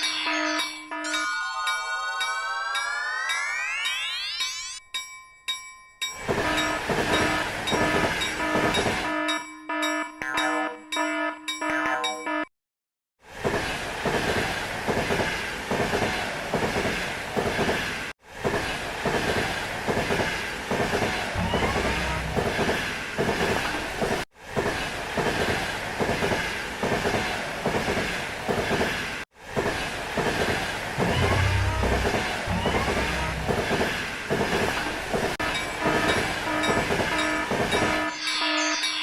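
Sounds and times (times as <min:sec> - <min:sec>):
train wheels clattering: 0:06.2 - 0:09.1, 0:13.5 - 0:38.1.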